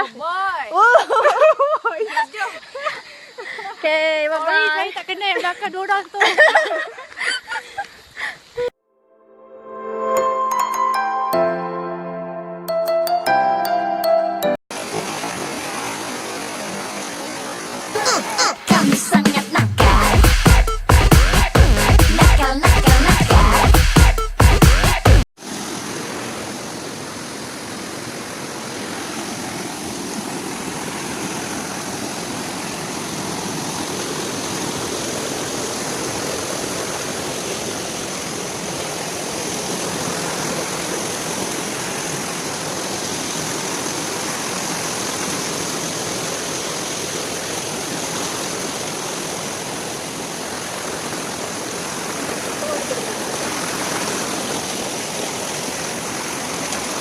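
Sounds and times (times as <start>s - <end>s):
waterfall rushing: 14.7s - 57.0s.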